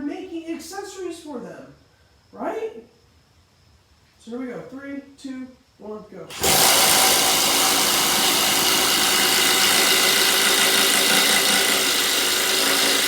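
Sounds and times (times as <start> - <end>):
impact driver hammering: 6.3 - 13.0.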